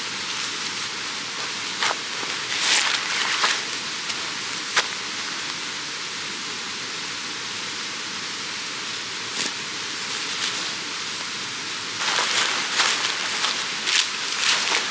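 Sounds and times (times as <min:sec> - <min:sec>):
mountain stream rushing: 0:10.7 - 0:14.9.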